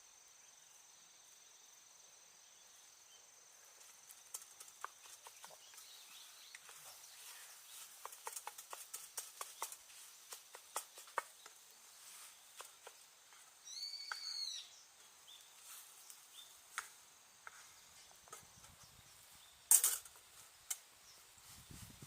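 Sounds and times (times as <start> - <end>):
campfire crackling: 4.0 - 13.6
bird calling: 4.8 - 15.5.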